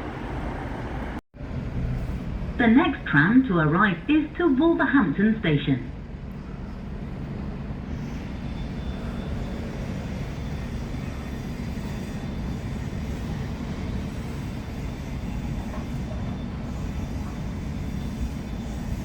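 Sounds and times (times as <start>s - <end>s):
tram rumble: 0.0s - 19.0s.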